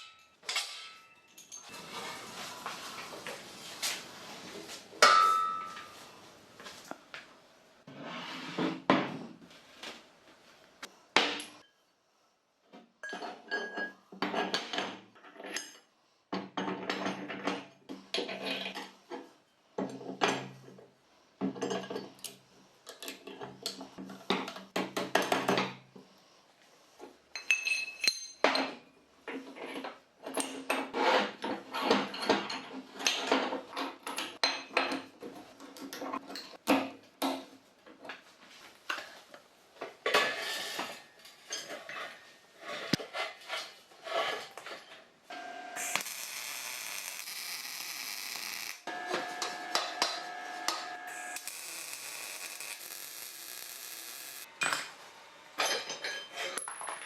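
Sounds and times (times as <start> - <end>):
metal tools clinking and clattering: 0.0 - 1.9, 27.4 - 28.8, 41.2 - 42.2, 55.6 - 57.0.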